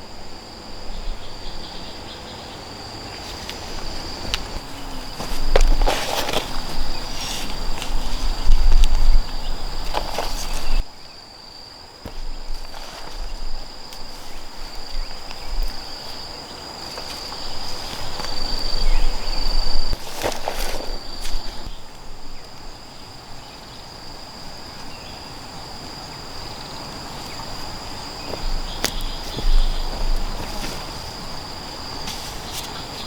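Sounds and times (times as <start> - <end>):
insects trilling: 0.0 - 33.0
rustling: 3.1 - 10.9, 12.0 - 22.5, 26.9 - 33.0
footsteps: 3.2 - 10.9, 27.0 - 33.0.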